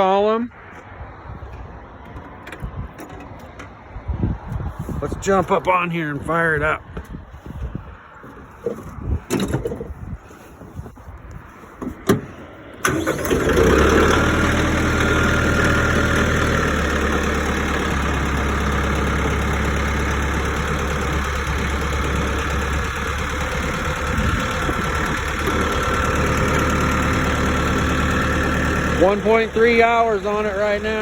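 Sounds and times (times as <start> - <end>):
tractor diesel engine starting and idling: 9.7 - 31.0.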